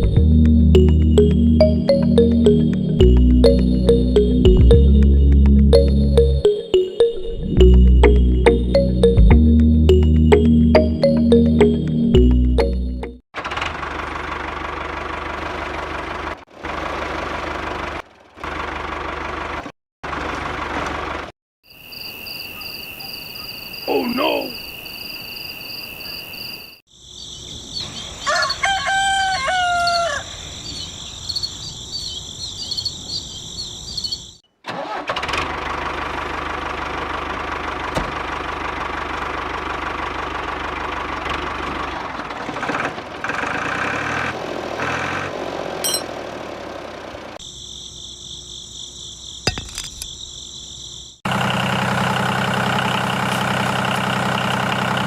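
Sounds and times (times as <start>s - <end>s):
engine running: 0.0s - 6.4s, 7.6s - 21.3s, 34.8s - 47.4s, 51.3s - 55.0s
steady high tone: 0.0s - 13.2s, 23.9s - 24.6s
rooster crowing: 28.2s - 30.6s.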